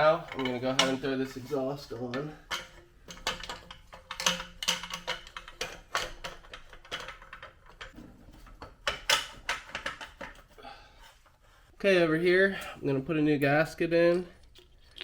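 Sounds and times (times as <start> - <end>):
metal clinking and clanking: 0.0 - 10.6.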